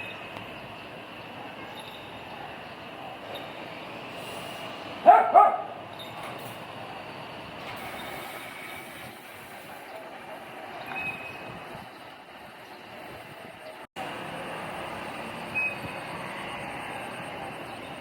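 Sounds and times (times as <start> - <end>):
dog barking: 5.0 - 5.8.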